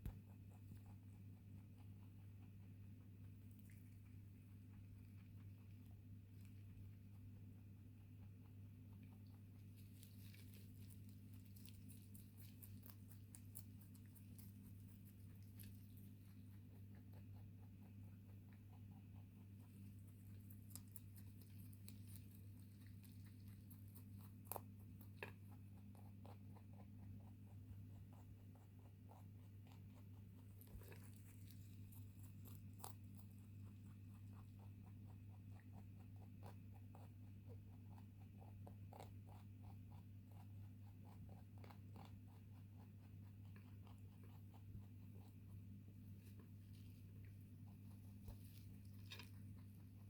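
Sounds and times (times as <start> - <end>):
rabbit chewing and crunching food: 0.0 - 50.0.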